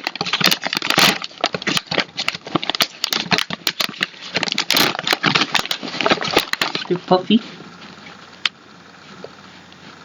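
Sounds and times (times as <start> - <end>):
plastic snack bag crinkling: 0.0 - 7.6.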